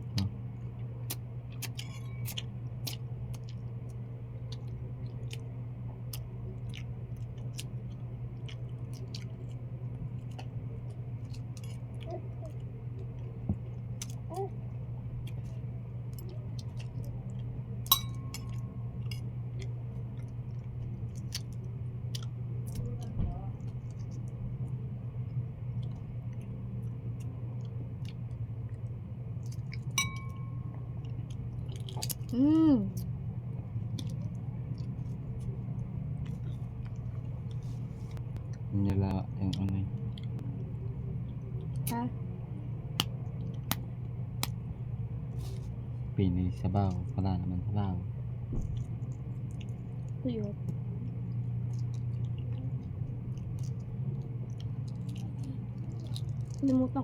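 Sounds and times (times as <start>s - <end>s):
person chewing with mouth sounds: 0.0s - 42.0s, 48.6s - 57.0s
low hum: 0.0s - 57.0s
tableware clinking: 17.9s - 18.6s, 30.0s - 30.6s.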